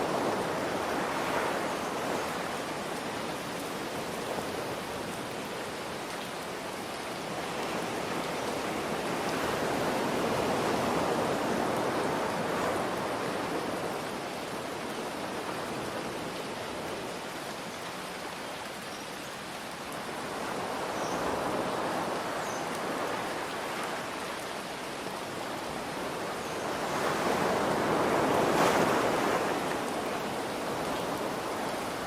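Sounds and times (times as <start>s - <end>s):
steady rain: 0.0s - 32.0s
ocean waves breaking: 25.3s - 32.0s.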